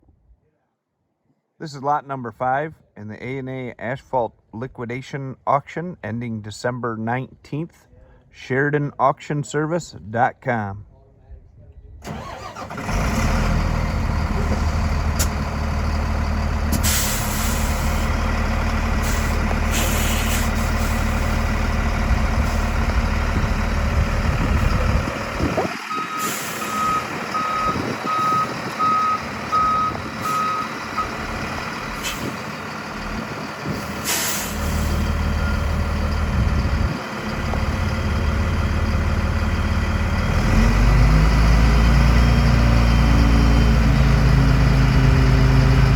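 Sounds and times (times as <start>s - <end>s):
diesel truck engine running: 12.0s - 45.9s
air brake hisses: 16.7s - 18.1s, 19.0s - 21.4s, 32.0s - 32.4s, 33.8s - 35.0s
backup alarm beeping: 25.9s - 31.3s.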